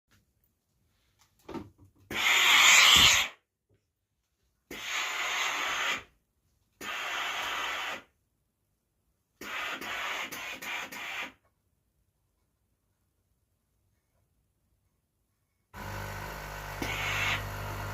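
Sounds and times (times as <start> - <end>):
steam iron hissing: 2.1 - 3.4, 4.7 - 6.0, 6.8 - 8.1, 9.4 - 11.4, 15.8 - 17.9.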